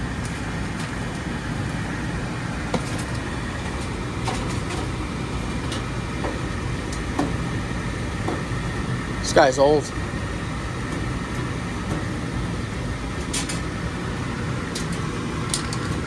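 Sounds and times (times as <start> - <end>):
furnace blower running: 0.0 - 16.0.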